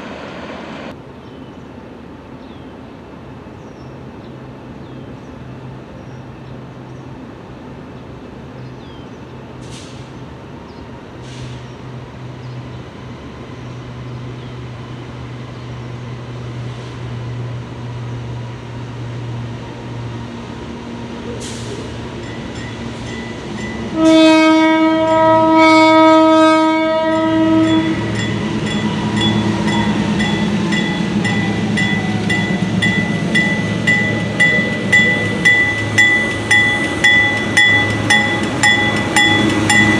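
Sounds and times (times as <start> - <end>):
diesel locomotive engines humming: 0.0 - 39.9
train horn blast: 23.9 - 28.2
steady high tone: 27.2 - 39.9.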